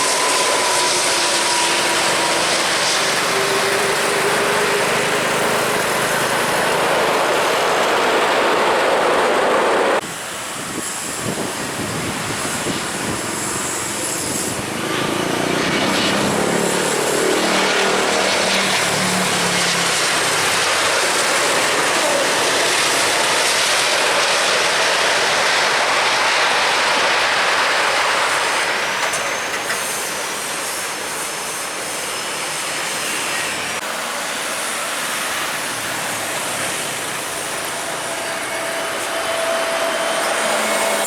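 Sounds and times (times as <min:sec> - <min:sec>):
jet airliner engine whine: 0:00.0 - 0:41.0.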